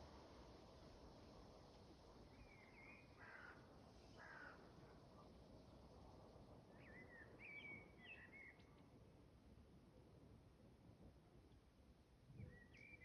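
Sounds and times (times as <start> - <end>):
background hiss: 0.0 - 6.4.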